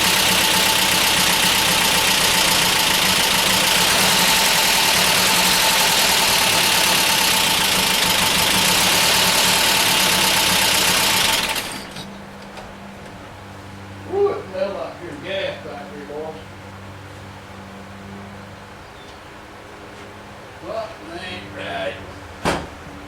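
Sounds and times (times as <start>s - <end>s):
engine idling roughly and misfiring: 0.0s - 12.2s.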